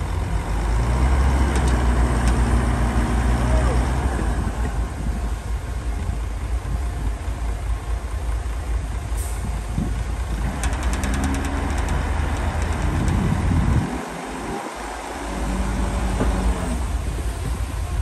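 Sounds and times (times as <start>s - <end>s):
diesel machinery rumble: 0.0s - 18.0s
rattling clicks: 1.4s - 2.6s, 10.3s - 16.9s.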